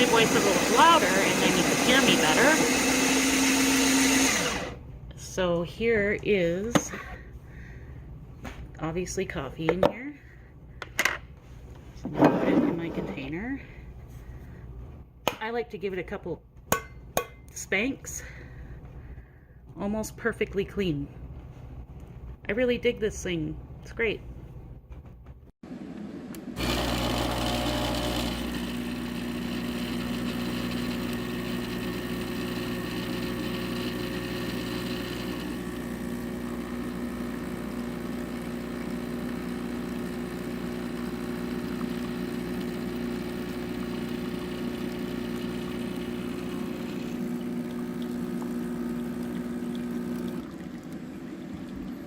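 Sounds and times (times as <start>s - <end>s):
coffee grinder motor hum: 0.0s - 4.8s, 26.4s - 52.0s.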